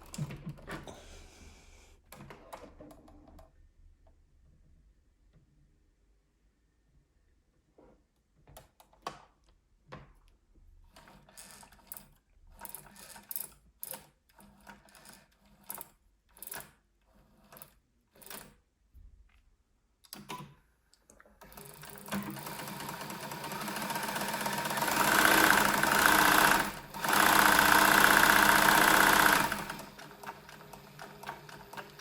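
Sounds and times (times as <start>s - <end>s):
sewing machine clicking: 10.9s - 16.8s, 21.4s - 32.0s.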